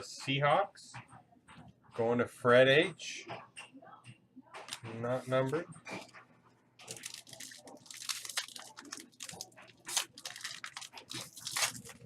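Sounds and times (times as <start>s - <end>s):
card packs crinkling: 6.8s - 12.0s.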